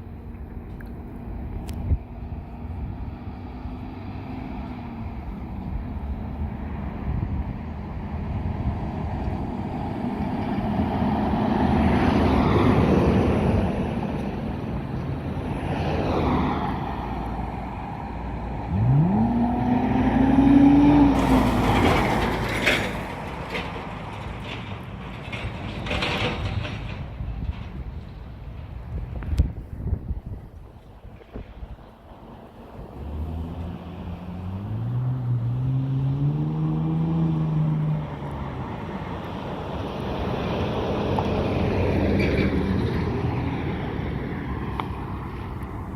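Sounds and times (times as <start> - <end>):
car engine revving: 18.7 - 22.3.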